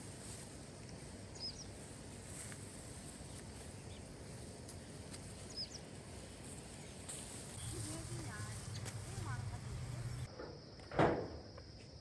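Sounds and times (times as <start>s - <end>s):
small bird chirping: 1.3s - 1.8s, 4.8s - 6.0s.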